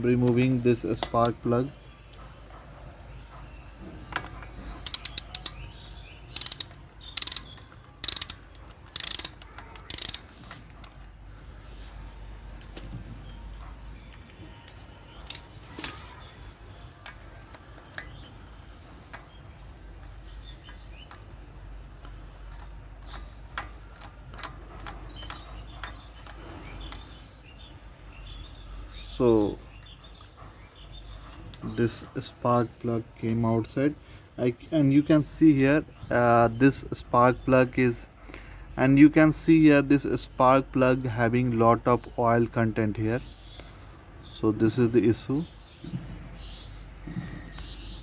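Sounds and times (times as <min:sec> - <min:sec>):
tool handling: 0:04.2 - 0:05.7, 0:06.3 - 0:10.5
socket wrench ratchet clicking: 0:04.8 - 0:05.6, 0:06.4 - 0:10.2.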